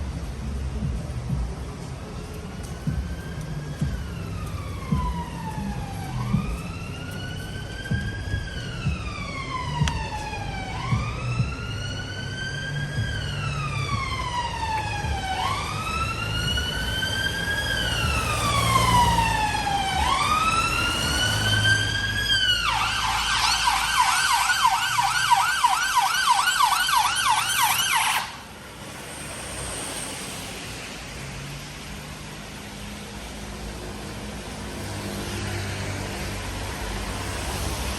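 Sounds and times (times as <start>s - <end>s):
low traffic rumble: 0.0s - 37.9s
emergency siren wailing and yelping: 2.8s - 28.5s.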